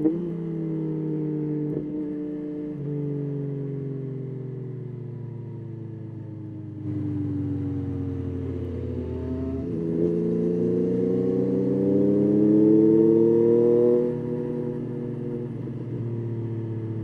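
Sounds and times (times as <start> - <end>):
motorcycle engine accelerating: 5.4 - 17.0.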